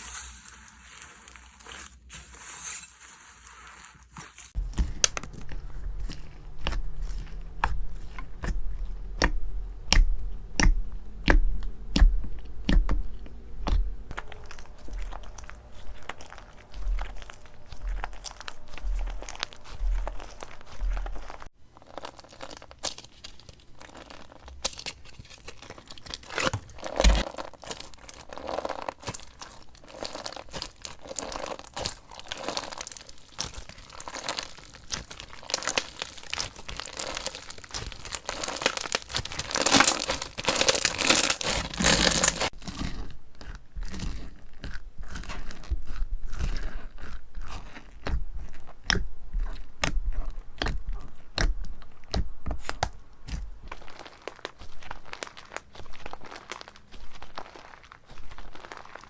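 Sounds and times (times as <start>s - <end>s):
slime squeezed by hand crackling: 21.8s - 42.6s.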